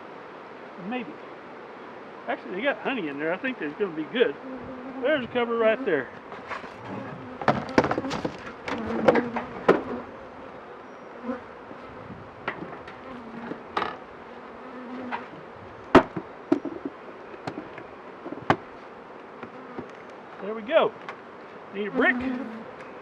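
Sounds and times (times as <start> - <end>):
honeybees buzzing: 0.0 - 23.0
wooden hive cover knocking: 7.4 - 10.0, 15.9 - 17.7.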